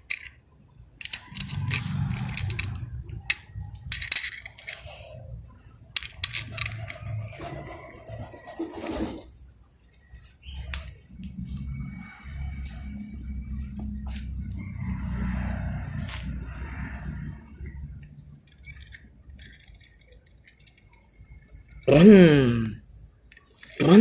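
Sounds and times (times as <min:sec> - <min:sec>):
toys clicking and knocking: 0:00.0 - 0:07.4, 0:18.0 - 0:24.0.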